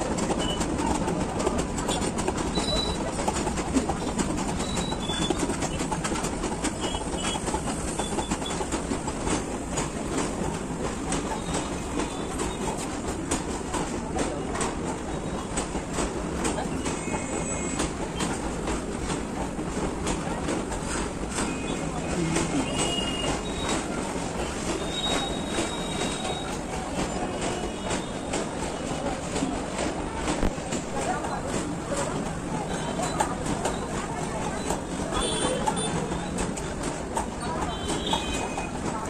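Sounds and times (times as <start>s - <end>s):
freight train rumbling past: 0.0s - 39.0s
wheels clacking over rail joints: 0.0s - 39.0s
high wheel squeals: 21.5s - 28.3s.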